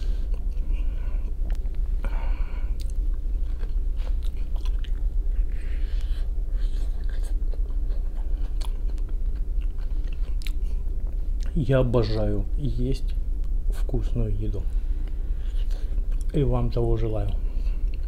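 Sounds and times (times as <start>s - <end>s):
steady low hum: 0.0s - 18.0s
chewing potato: 2.8s - 11.6s.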